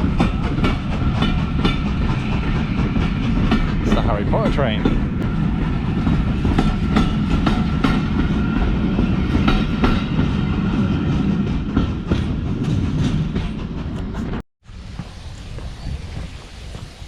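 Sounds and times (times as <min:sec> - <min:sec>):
wheels clacking over rail joints: 0:00.0 - 0:05.3
steam train rumbling: 0:00.0 - 0:17.0.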